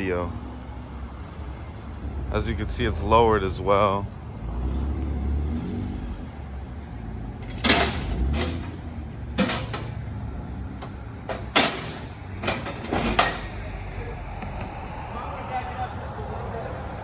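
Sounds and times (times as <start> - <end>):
low rumble: 13.4 - 17.0.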